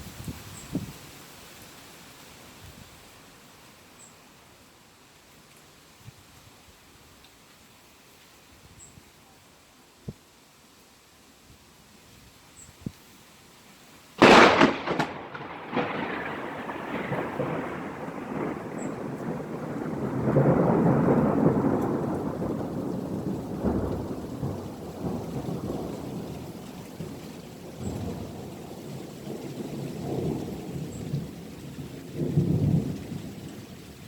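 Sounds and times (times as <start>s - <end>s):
steady rain: 0.0s - 34.0s
thunder clap: 14.2s - 26.4s
thunder rumbling: 14.2s - 33.7s.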